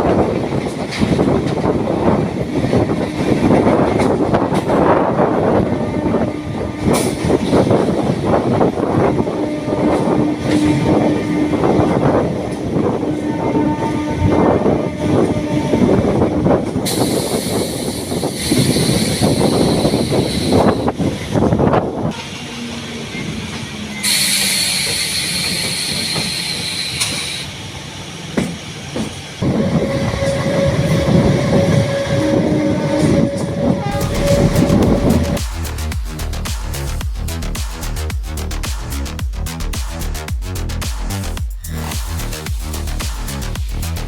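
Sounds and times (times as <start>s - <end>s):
train rumbling on rails: 0.0s - 44.0s
long steady tone: 29.4s - 35.4s.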